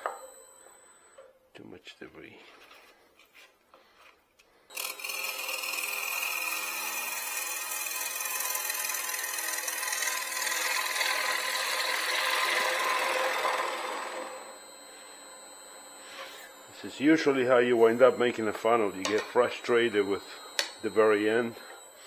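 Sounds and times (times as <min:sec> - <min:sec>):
bowl gouge scraping wood: 0:14.5 - 0:22.0.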